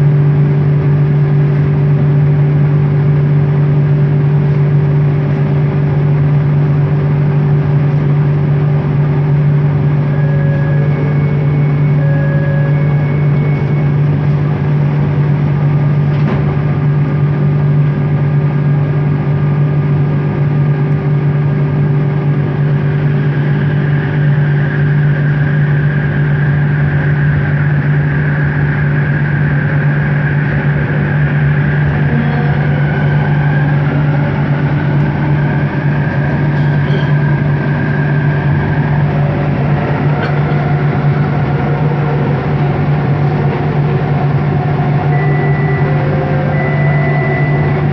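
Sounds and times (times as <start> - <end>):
high wavering whine: 0.0 - 47.9
train motor humming: 0.0 - 47.9.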